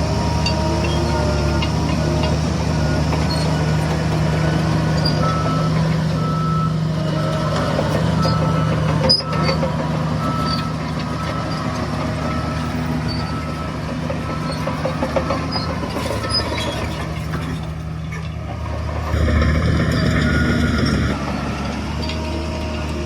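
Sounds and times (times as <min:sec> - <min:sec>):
diesel vehicle engine running: 0:00.0 - 0:23.0
reversing alarm beeping: 0:04.4 - 0:16.6, 0:19.2 - 0:21.4.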